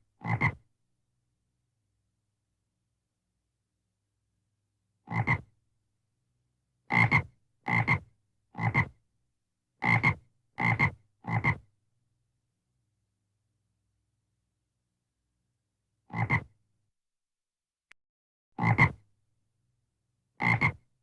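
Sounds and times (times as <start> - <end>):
frog croaking: 0.2 - 0.6, 5.1 - 5.4, 16.1 - 16.5, 20.4 - 20.8.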